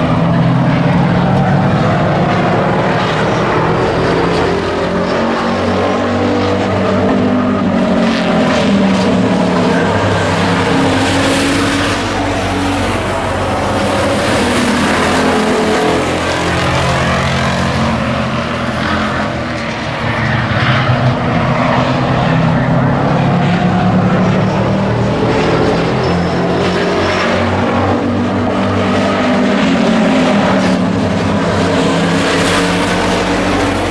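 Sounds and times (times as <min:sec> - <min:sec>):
race truck engines: 0:00.0 - 0:33.9.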